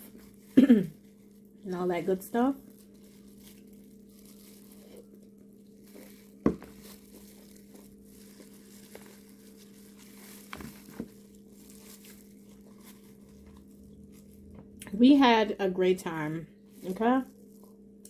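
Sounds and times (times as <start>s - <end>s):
steady low hum: 0.0s - 18.0s
shells and plastic crinkling: 0.3s - 14.5s.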